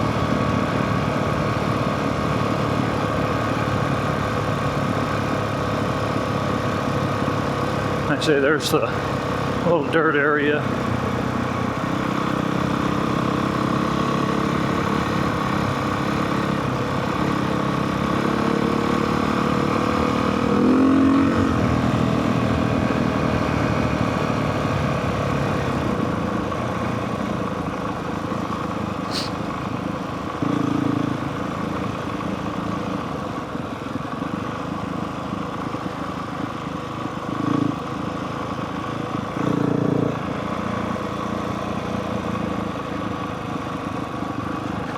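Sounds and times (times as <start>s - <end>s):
dirt bike engine revving: 18.1s - 22.7s, 29.1s - 29.4s.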